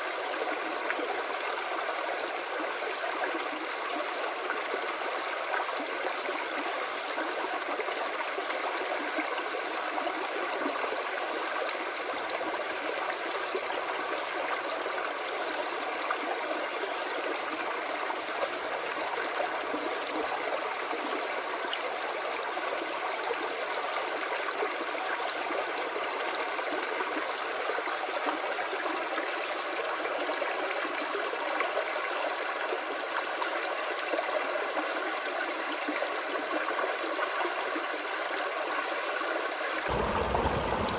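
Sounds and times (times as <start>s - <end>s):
creek water flowing: 39.9s - 40.9s.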